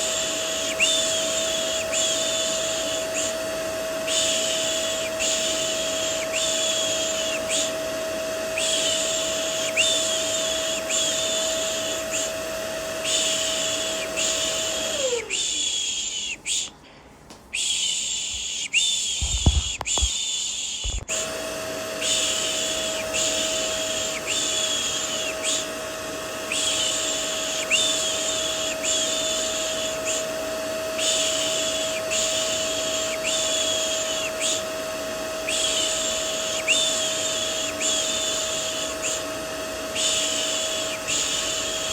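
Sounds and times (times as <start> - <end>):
vacuum cleaner humming: 0.0 - 16.7, 17.5 - 41.9
dull thumps: 19.1 - 20.2.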